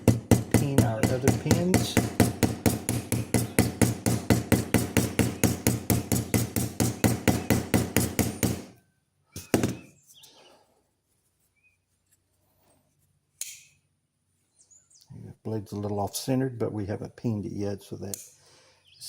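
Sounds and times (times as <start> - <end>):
hammer knocks: 0.0 - 8.7, 9.4 - 9.9
hammer tapping pins: 0.0 - 8.7, 9.4 - 9.9.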